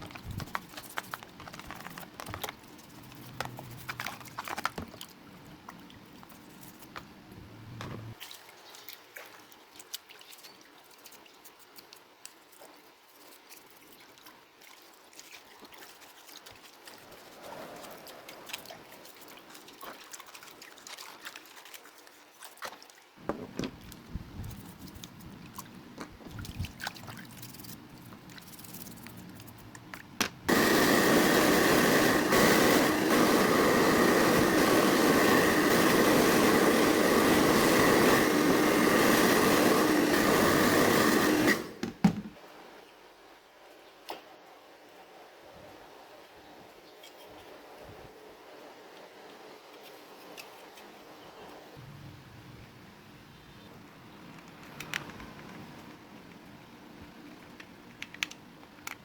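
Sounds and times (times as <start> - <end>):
mechanical whirring hum: 7.0 - 8.2
clicks and taps of parts handled: 57.4 - 59.0.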